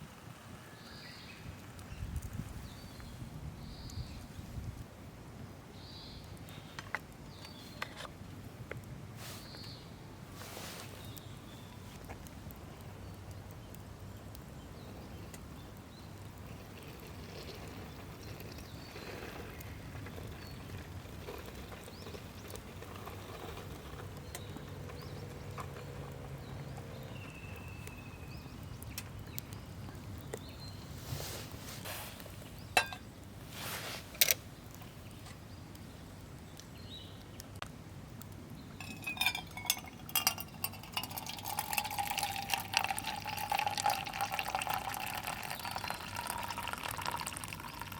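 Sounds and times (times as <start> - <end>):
camp cookware clinking: 32.7 - 33.1, 38.8 - 47.9
liquid pouring into a vessel: 38.8 - 47.9.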